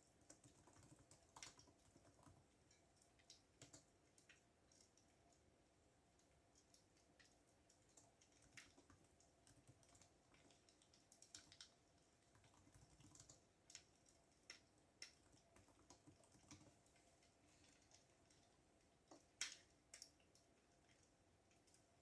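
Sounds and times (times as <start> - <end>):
computer keyboard typing: 0.0 - 4.3, 8.0 - 16.8.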